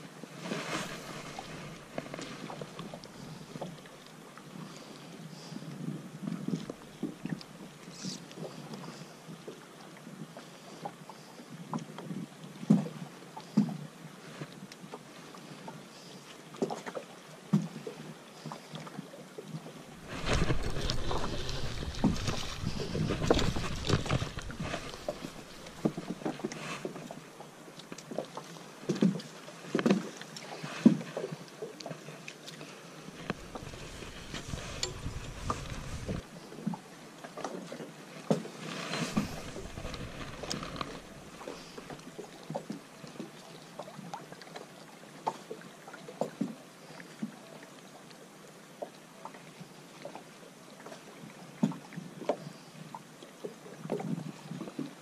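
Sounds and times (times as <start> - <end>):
wind rumble on microphone: 20.0 - 26.2, 33.2 - 36.3, 39.1 - 42.0.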